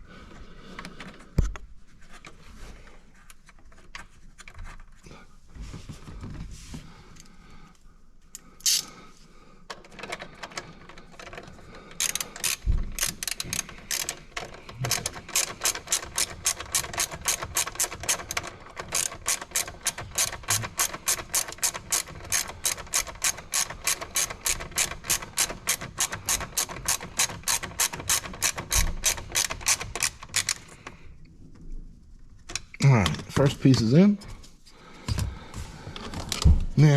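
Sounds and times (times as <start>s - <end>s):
ratchet wrench clicking: 8.6s - 8.9s, 12.0s - 14.2s, 14.8s - 30.7s.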